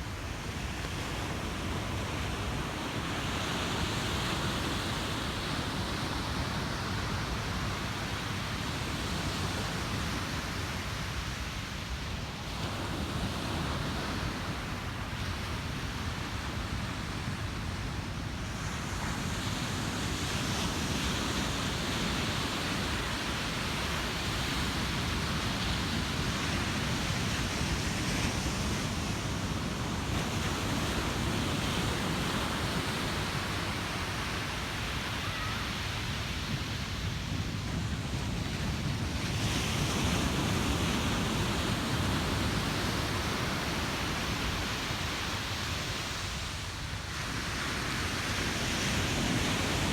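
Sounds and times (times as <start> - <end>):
ocean surf breaking: 21.5 - 49.9.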